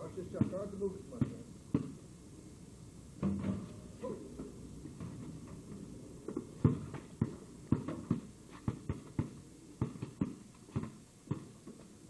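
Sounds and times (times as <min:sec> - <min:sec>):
basketball bouncing: 0:00.3 - 0:02.0, 0:03.2 - 0:03.8, 0:06.3 - 0:11.8.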